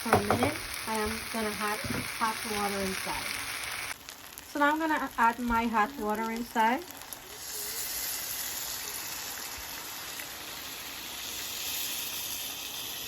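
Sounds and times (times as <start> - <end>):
water hissing in hot pan: 0.0 - 13.0.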